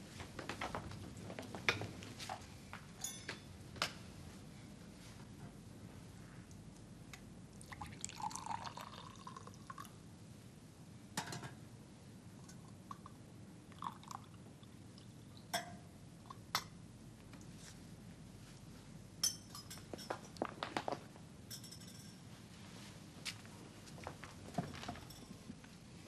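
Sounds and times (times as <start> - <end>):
china clinking: 3.0 - 3.4, 19.2 - 20.3, 21.5 - 22.2
liquid pouring into a cup: 7.6 - 10.0, 13.7 - 14.4.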